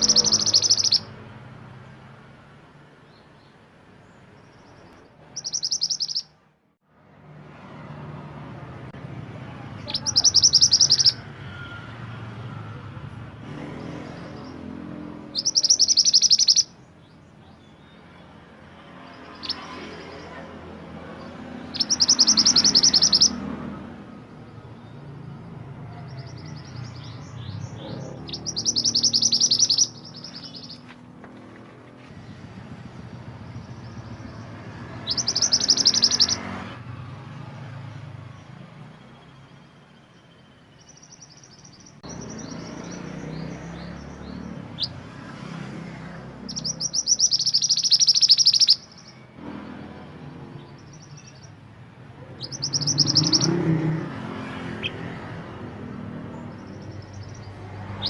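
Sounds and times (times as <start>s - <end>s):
songbird high trill: 0.0s - 1.1s, 5.4s - 6.3s, 9.8s - 11.2s, 15.2s - 16.8s, 21.7s - 23.4s, 26.1s - 30.9s, 35.0s - 36.4s, 46.5s - 49.2s, 52.4s - 53.7s.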